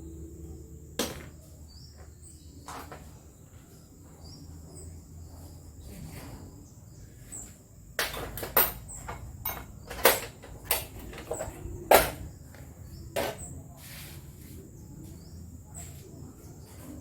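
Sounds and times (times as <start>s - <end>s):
hard objects knocking and clattering: 1.0s - 1.4s, 8.0s - 13.5s.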